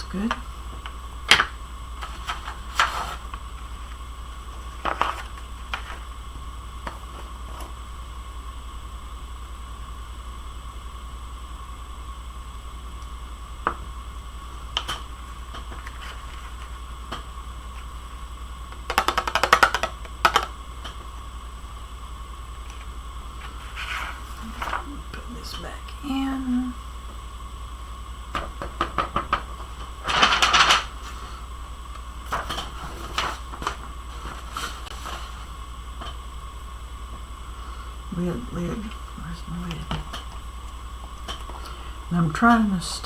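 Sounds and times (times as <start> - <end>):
steady electrical hum: 0.0 - 43.0
craft supplies tapping on desk: 18.9 - 20.5.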